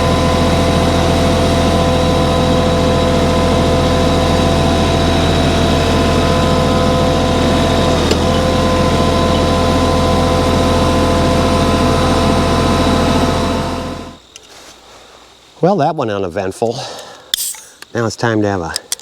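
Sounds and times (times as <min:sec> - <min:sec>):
tractor engine running: 0:00.0 - 0:14.2.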